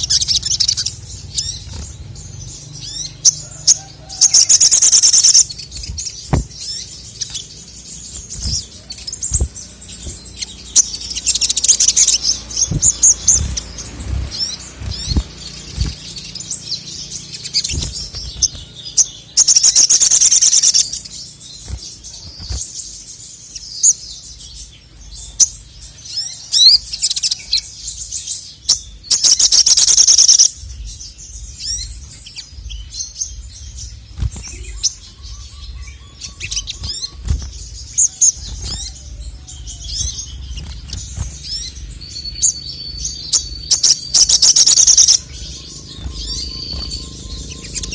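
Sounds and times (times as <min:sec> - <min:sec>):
loud fast bird trills: 0:00.0 - 0:22.7, 0:29.1 - 0:30.6, 0:34.3 - 0:47.9
bird singing high chirps: 0:00.0 - 0:47.9
low short thuds: 0:05.8 - 0:06.7, 0:09.3 - 0:10.3.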